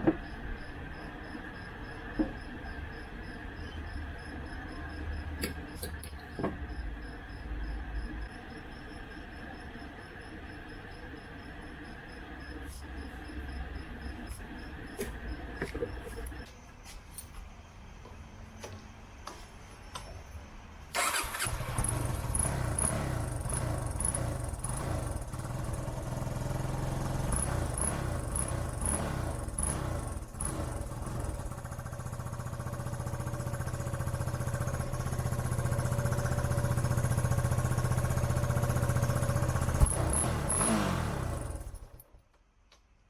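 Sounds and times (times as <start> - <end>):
motorcycle engine starting and running: 20.9 - 42.2.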